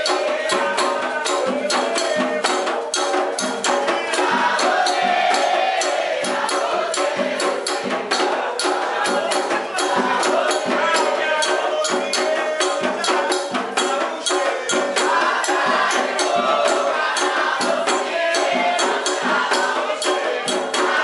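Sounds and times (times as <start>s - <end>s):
fast hand percussion: 0.0s - 21.0s
group singing: 0.0s - 21.0s.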